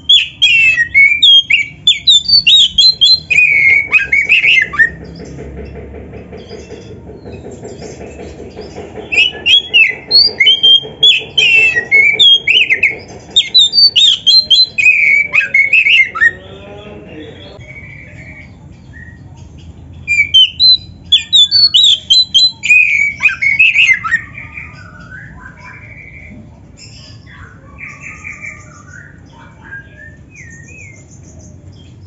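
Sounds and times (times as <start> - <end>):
bird singing whistled notes: 0.0 - 5.0, 9.1 - 16.5, 20.0 - 26.4, 27.0 - 31.9
low rapid pulsing: 0.0 - 17.8.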